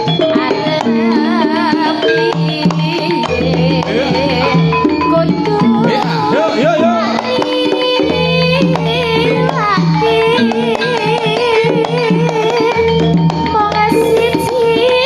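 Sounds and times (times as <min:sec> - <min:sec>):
gamelan music through speakers: 0:00.0 - 0:15.0
hand drum strokes: 0:00.0 - 0:15.0.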